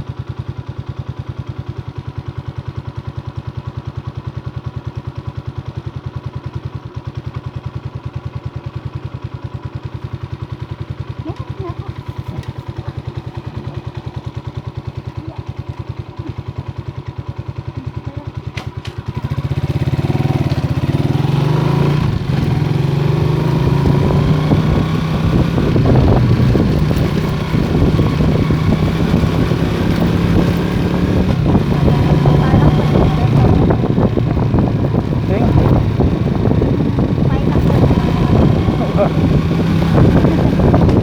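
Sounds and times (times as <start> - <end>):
motorcycle engine idling: 0.0 - 41.0
road and wind noise: 18.6 - 41.0.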